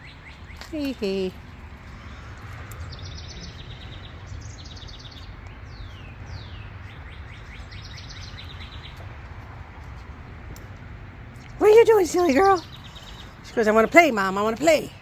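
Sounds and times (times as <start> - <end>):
songbirds trilling and whistling: 0.0 - 9.5, 11.4 - 15.0
low outdoor rumble: 0.0 - 15.0.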